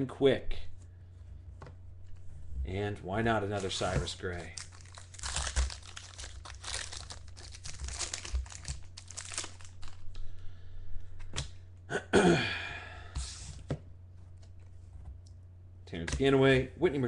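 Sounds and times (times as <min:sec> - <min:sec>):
wrapper crinkling and tearing: 0:03.5 - 0:10.2.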